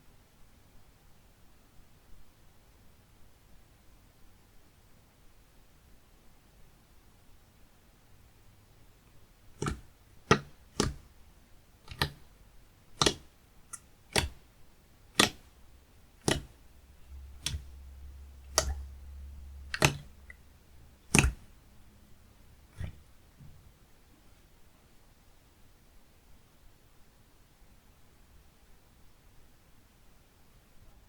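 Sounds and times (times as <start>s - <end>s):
slime click-pops: 9.6s - 11.1s, 11.9s - 12.2s, 13.0s - 14.4s, 15.1s - 15.5s, 16.2s - 16.6s, 17.2s - 17.8s, 18.4s - 19.0s, 19.6s - 20.4s, 21.0s - 21.5s, 22.7s - 23.0s.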